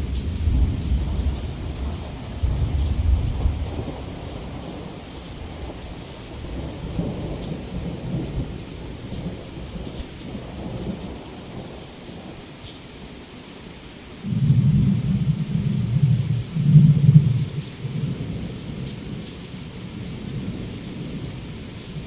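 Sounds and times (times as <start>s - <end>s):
low thunder rumble: 0.0s - 11.7s, 14.2s - 22.0s
heavy rain on window: 0.0s - 22.0s
raindrop ticks: 14.2s - 22.0s.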